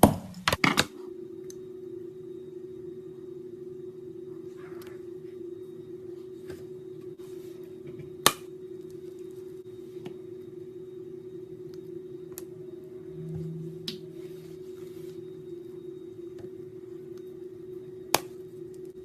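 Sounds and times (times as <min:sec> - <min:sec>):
steady hum: 0:00.0 - 0:19.0
brief low tone: 0:12.6 - 0:16.3.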